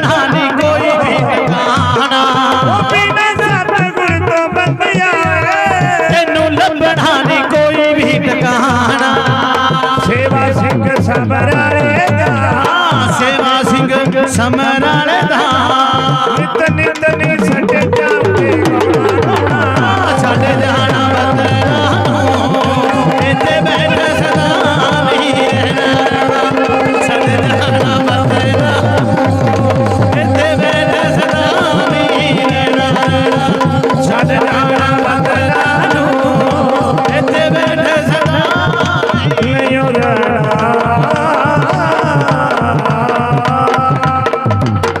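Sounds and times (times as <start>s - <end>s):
fast hand drum rhythm: 0.0s - 45.0s
wavering melody line: 18.2s - 23.9s.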